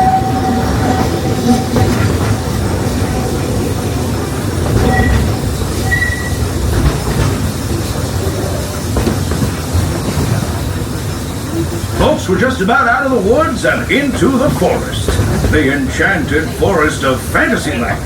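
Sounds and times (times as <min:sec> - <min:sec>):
train wheels rumbling on rail: 0:00.0 - 0:18.0
thin wheel squeals: 0:04.8 - 0:06.4.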